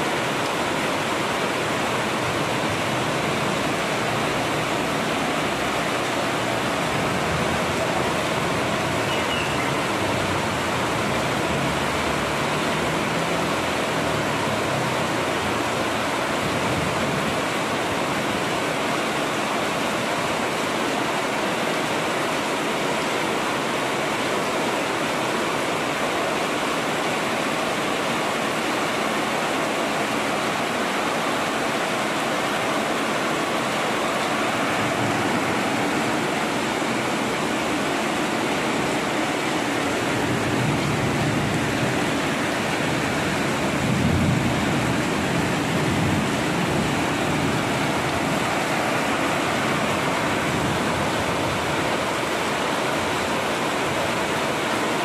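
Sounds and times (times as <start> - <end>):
heavy rain falling: 0.0 - 55.0
runoff pouring off roof: 0.0 - 55.0.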